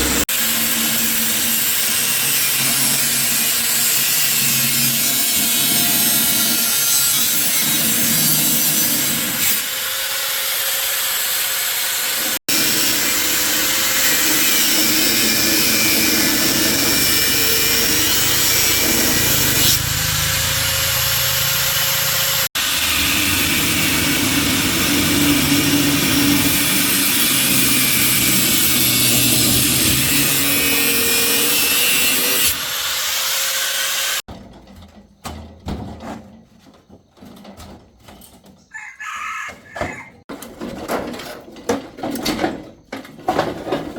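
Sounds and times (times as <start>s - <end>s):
power tool grinding: 0.0s - 34.3s.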